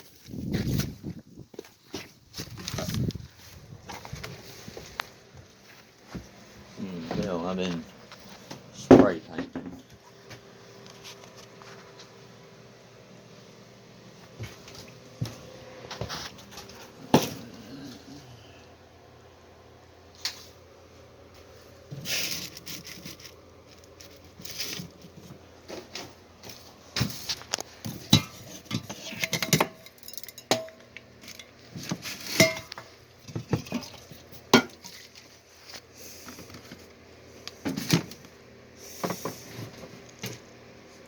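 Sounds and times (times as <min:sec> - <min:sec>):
metal tools clanking on workbench: 0:28.0 - 0:31.5.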